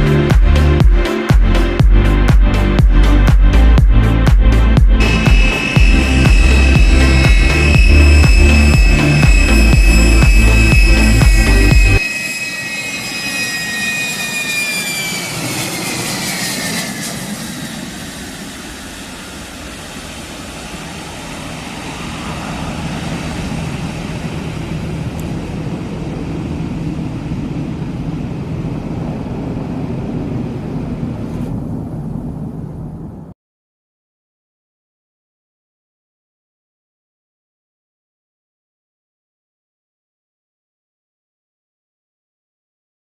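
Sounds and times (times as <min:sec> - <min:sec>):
jet engine rushing noise: 0:04.5 - 0:33.4
jet engine whine: 0:04.5 - 0:33.4.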